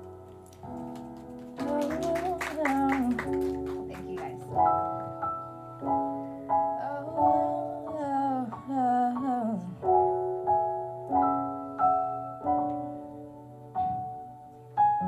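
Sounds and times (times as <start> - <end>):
slow keyboard chords: 0.0 - 15.0.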